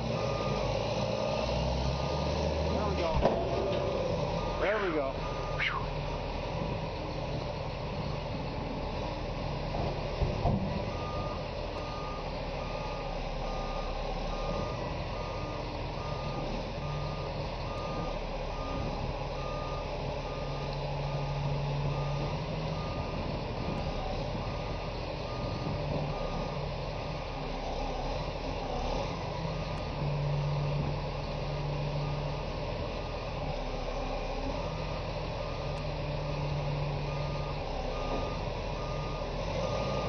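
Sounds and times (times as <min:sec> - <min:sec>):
diesel engine running: 0:00.0 - 0:40.0
reversing alarm beeping: 0:00.1 - 0:01.1, 0:04.2 - 0:05.9, 0:10.9 - 0:23.3, 0:24.4 - 0:26.6, 0:34.6 - 0:40.0.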